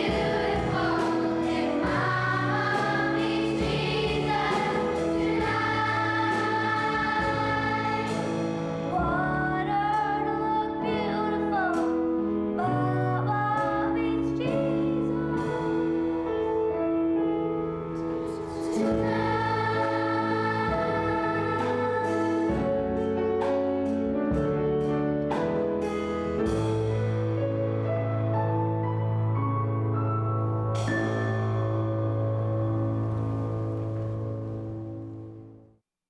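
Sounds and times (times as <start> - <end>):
choir singing sustained chords: 0.0 - 9.0, 17.6 - 23.0, 30.8 - 35.4.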